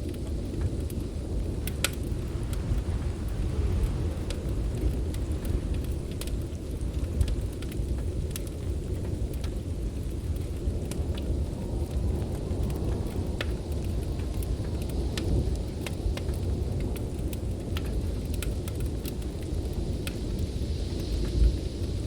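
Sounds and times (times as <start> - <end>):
storm wind rumbling: 0.0 - 22.0
wood fire crackling: 0.0 - 22.0.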